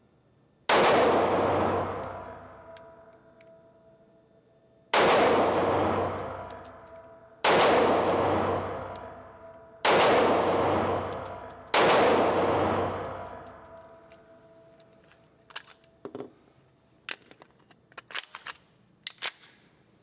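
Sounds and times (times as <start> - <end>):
pistol shots: 0.7 - 2.8, 4.9 - 13.7.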